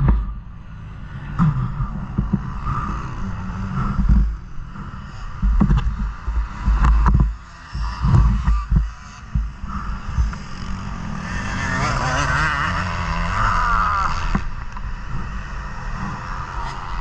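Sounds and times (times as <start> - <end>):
low thumps: 0.0 - 0.5, 1.3 - 11.2
motocross bike engine revving: 0.8 - 17.0.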